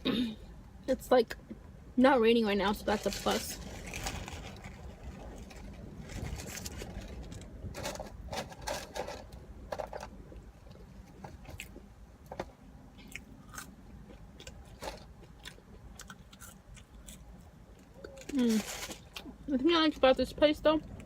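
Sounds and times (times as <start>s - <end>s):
crisp crackles: 2.7s - 9.3s, 18.0s - 19.4s
person biting and chewing food: 13.0s - 18.4s.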